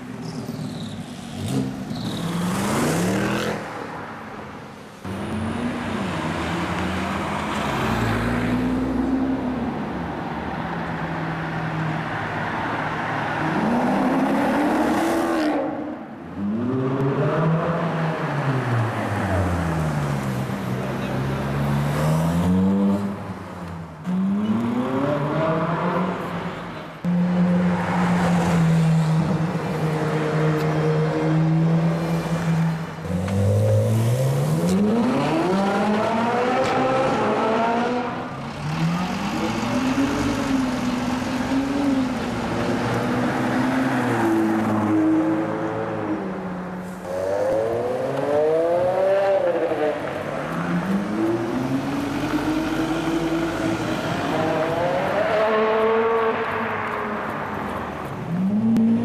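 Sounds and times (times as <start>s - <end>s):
sports car engines revving: 11.9s - 59.0s.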